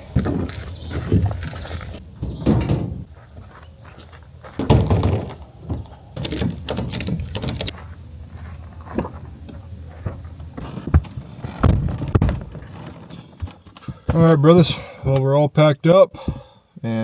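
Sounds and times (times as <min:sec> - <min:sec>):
camping gear thumping and rustling: 0:00.0 - 0:07.9, 0:08.8 - 0:15.0
door thud: 0:04.6 - 0:05.4.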